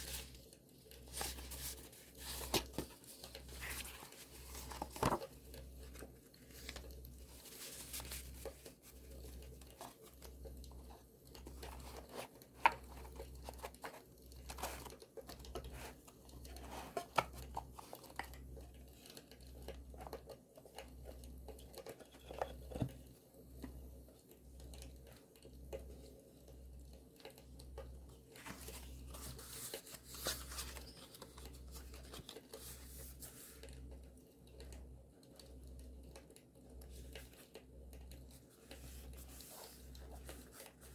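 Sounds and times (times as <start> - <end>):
paper crinkling and rustling: 0.0 - 20.8, 28.1 - 33.8, 38.3 - 40.9.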